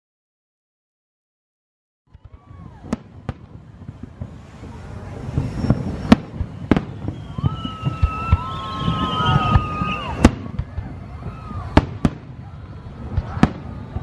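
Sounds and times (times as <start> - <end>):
fireworks crackle and rumble: 2.1 - 14.0
fireworks shells bursting: 2.2 - 12.3
high whistle: 5.3 - 10.4.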